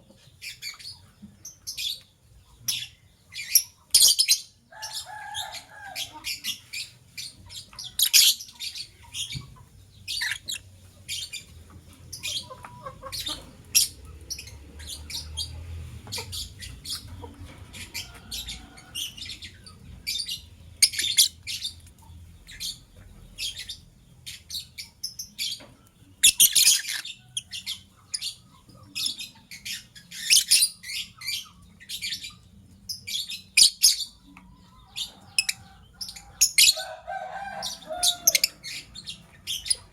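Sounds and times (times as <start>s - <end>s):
lovebirds chirping: 0.0s - 39.9s
lovebird chatter: 2.6s - 34.2s.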